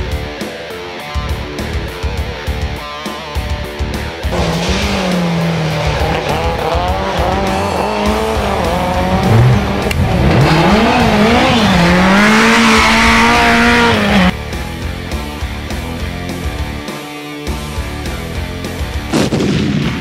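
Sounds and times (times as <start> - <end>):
car engine revving: 4.2 - 14.4.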